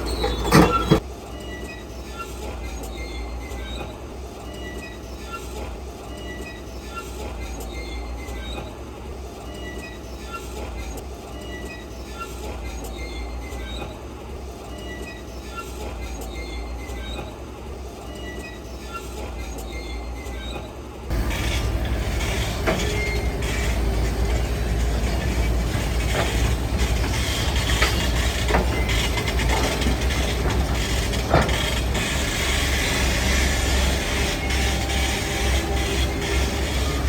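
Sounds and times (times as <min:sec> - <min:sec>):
construction machinery rumbling: 0:00.0 - 0:01.1, 0:21.1 - 0:37.0
short high squeaks: 0:00.0 - 0:02.3, 0:18.1 - 0:37.0.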